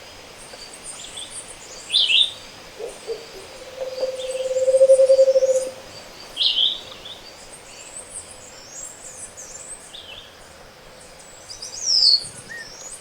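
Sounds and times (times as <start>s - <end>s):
high-pitched bird calls: 2.8s - 5.8s
hollow trill of hoots: 2.8s - 5.9s.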